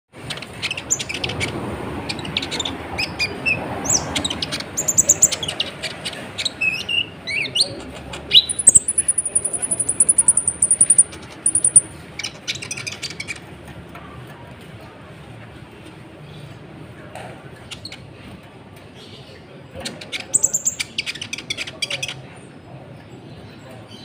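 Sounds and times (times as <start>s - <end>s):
bird singing high chirps and trills: 6.4s - 13.4s, 20.0s - 22.1s.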